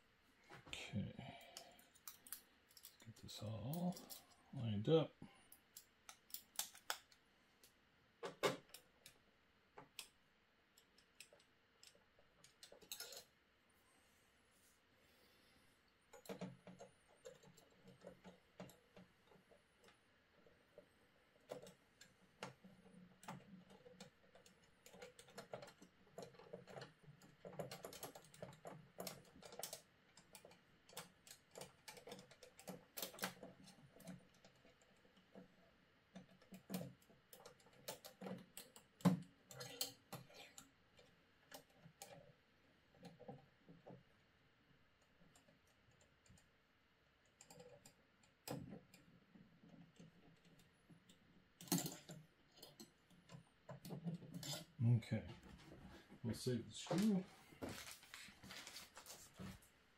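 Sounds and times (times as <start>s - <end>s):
hand tool clicking on parts: 5.5s - 7.8s.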